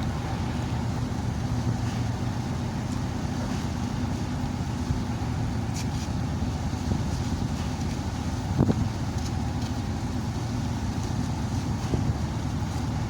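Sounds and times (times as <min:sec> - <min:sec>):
low engine rumble: 0:00.0 - 0:13.0
wind: 0:00.0 - 0:13.0.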